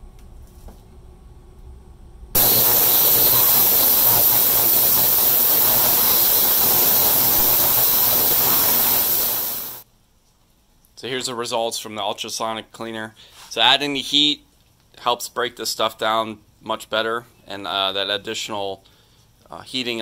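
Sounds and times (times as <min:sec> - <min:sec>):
ultrasonic cleaner hissing buzz: 0:02.4 - 0:09.8.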